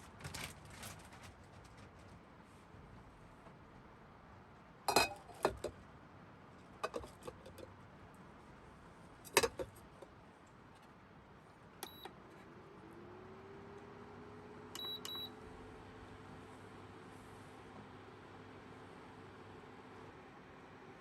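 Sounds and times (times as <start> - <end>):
dishes and glassware clinking: 4.9 - 5.7, 6.8 - 7.6.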